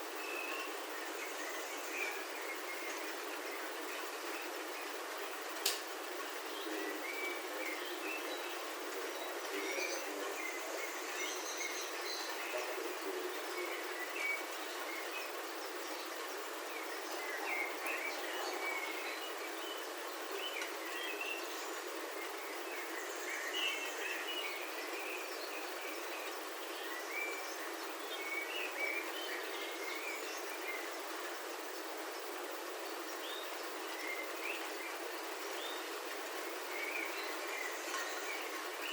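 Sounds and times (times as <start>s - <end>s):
birds chirping: 0.0s - 38.9s
rain on a roof: 2.0s - 11.1s, 30.9s - 38.8s.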